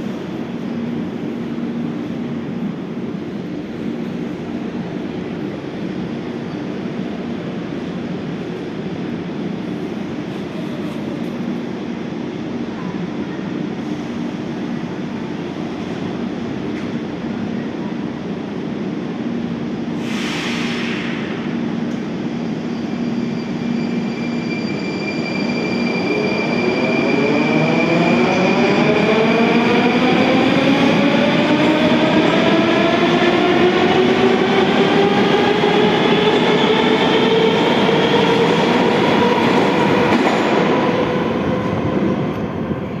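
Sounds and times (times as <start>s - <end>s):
metro traction drive whine: 21.1s - 43.0s.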